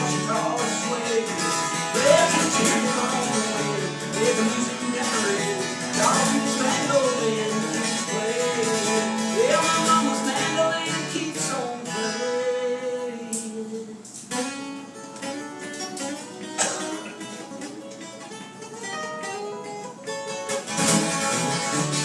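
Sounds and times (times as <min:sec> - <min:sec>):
person singing: 0:00.0 - 0:14.2
acoustic guitar picking: 0:00.0 - 0:22.0.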